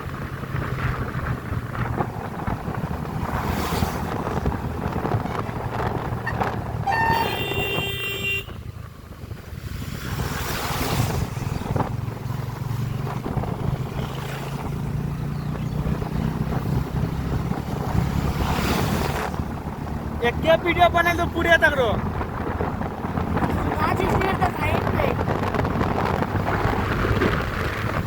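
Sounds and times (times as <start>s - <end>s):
wind buffeting microphone: 0.0s - 28.0s
vehicle horn: 6.2s - 8.6s
motorcycle engine running: 11.0s - 20.6s.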